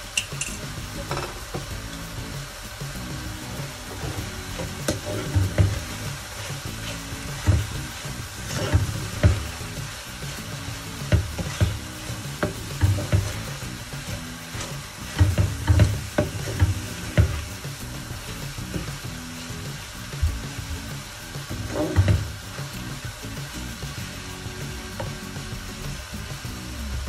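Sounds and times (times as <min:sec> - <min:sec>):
food sizzling in oil: 0:00.0 - 0:27.0
wooden spoon stirring and scraping: 0:03.5 - 0:19.6, 0:21.4 - 0:22.8.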